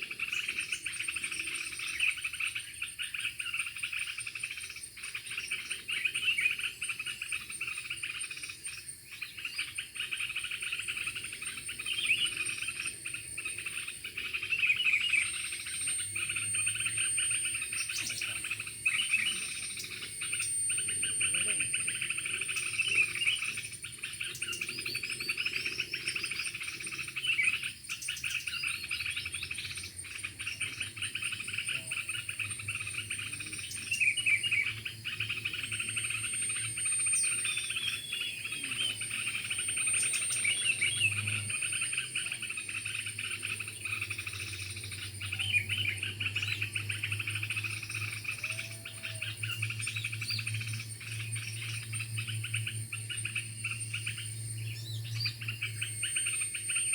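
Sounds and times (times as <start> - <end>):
birds chirping and trilling: 0.0 - 56.9
high-pitched insect drone: 0.0 - 56.9.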